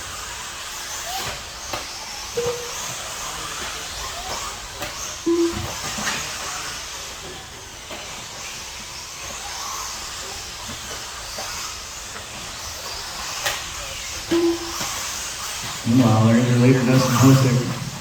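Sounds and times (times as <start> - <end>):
whir of small motors and tyres: 0.0 - 15.8
short low tone: 5.3 - 5.7, 14.4 - 14.9.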